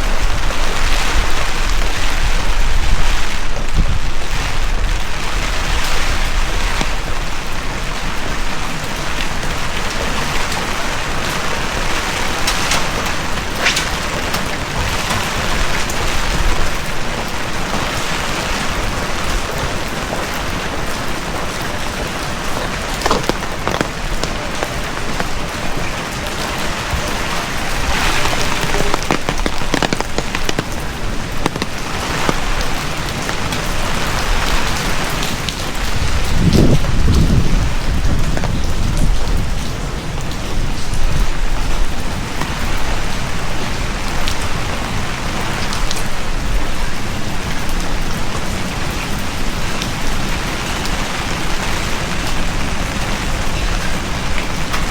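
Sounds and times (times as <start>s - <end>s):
heavy rain falling: 0.0s - 54.9s
water drops splashing: 22.9s - 25.9s, 27.3s - 33.4s.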